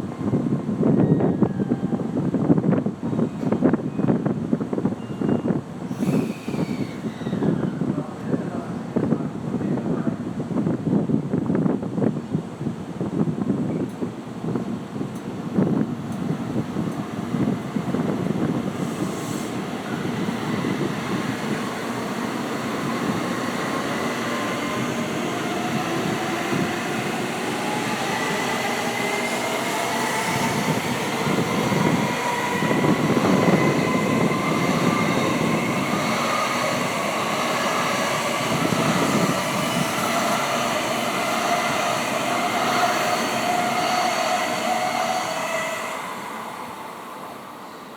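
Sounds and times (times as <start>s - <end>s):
wheels rumbling on rail: 10.2s - 46.0s
electric train motors whining: 16.1s - 45.9s.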